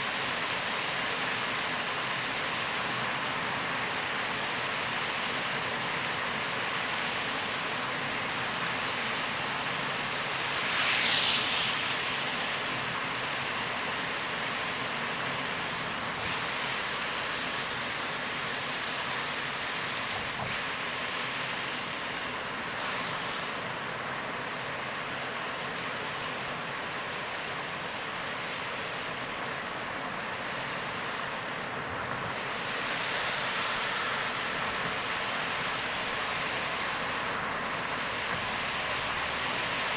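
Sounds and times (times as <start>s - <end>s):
tyres on wet road: 1.3s - 24.9s, 29.8s - 39.9s
heavy rain: 31.2s - 39.9s.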